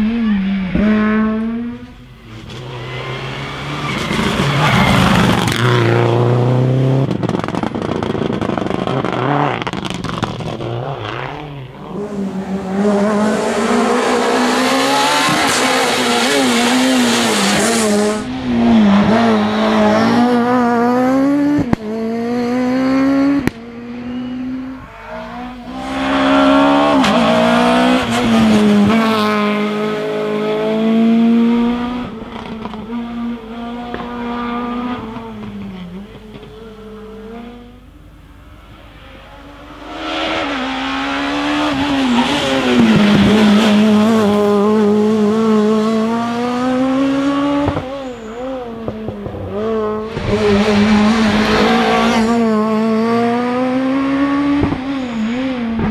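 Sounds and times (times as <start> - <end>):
rally car engines revving: 0.0 - 55.9.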